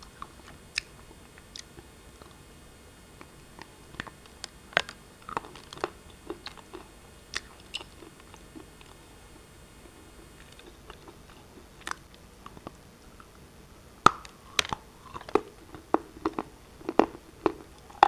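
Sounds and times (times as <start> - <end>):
rock being chewed crunching: 3.2 - 9.0, 9.8 - 13.4, 14.0 - 18.0.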